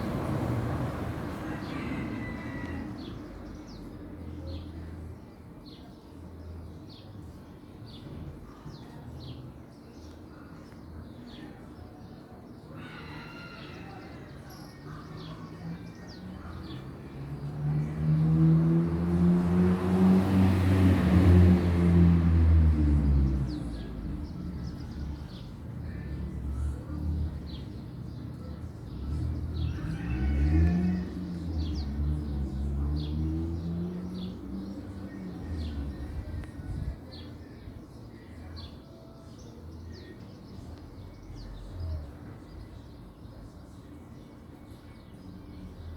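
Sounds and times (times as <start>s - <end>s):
vehicle driving by: 17.2s - 25.2s, 28.9s - 36.4s.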